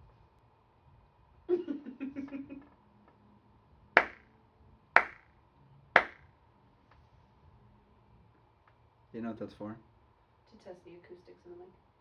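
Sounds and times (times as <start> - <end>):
sharp hand claps: 4.0 - 4.3, 5.0 - 5.3, 6.0 - 6.2.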